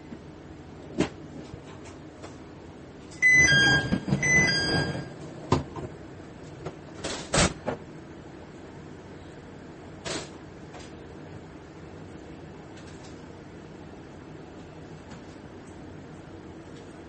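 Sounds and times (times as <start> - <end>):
two-note door chime: 3.2 - 5.2
sliding doors running: 3.2 - 5.8.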